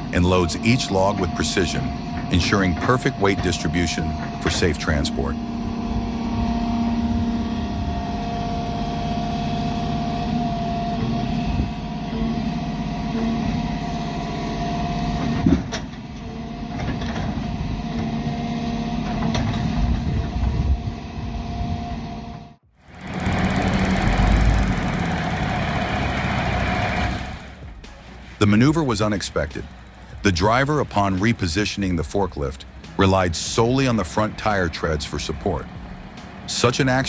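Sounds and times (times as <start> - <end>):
truck engine running: 0.0 - 37.0.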